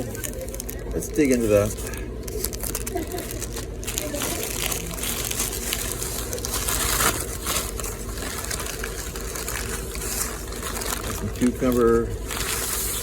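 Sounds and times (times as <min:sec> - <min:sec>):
paper wrapper rustling: 0:00.0 - 0:13.0.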